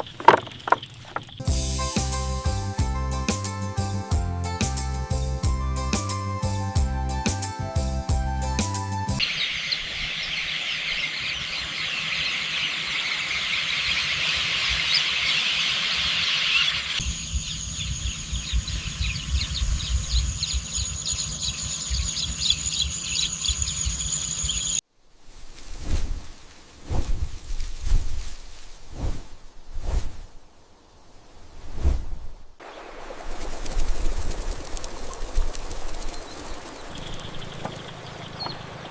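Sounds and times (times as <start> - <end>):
birds chirping chorus: 0.0 - 1.6, 9.2 - 24.8, 34.5 - 38.9
background music: 1.4 - 9.2.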